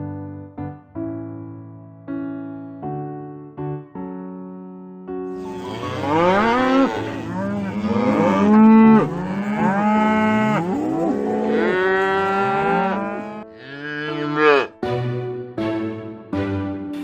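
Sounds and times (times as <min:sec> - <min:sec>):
cattle mooing: 0:05.4 - 0:14.8.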